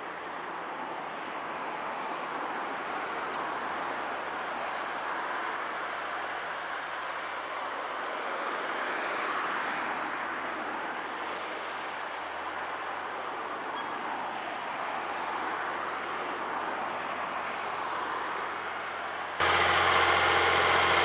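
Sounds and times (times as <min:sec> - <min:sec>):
tractor engine and working noise: 0:18.1 - 0:21.0.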